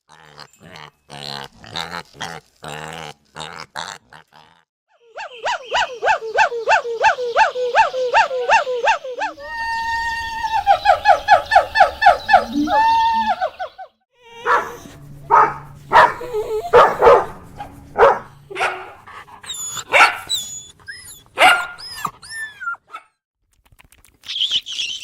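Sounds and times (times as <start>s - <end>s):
dog whining: 14.2s - 23.0s
dog yelping: 14.3s - 23.2s
dog barking: 14.4s - 20.4s, 21.4s - 22.1s, 22.9s - 23.2s.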